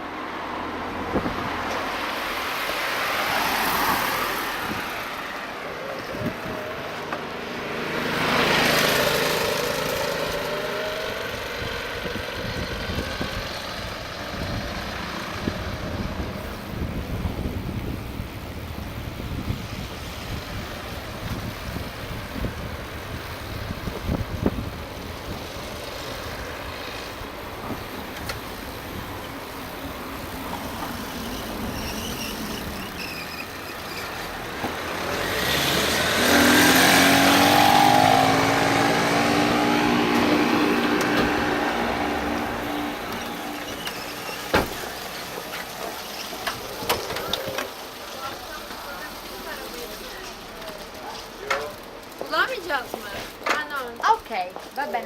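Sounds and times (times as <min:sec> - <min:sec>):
wind noise on microphone: 0:01.0 - 0:01.7, 0:06.1 - 0:06.8, 0:10.2 - 0:29.7
motor vehicle passing: 0:01.0 - 0:18.0, 0:19.4 - 0:51.3.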